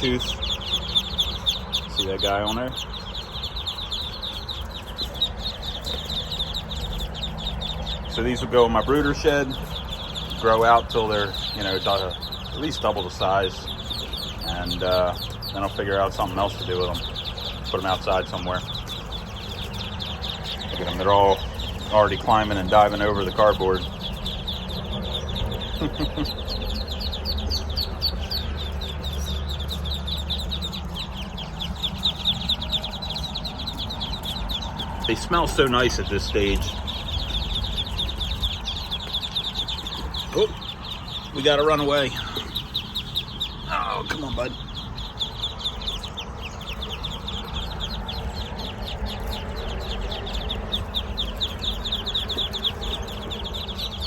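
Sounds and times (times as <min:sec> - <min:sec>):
ducklings peeping: 0:00.0 - 0:54.0
steady low rumble: 0:00.0 - 0:54.0.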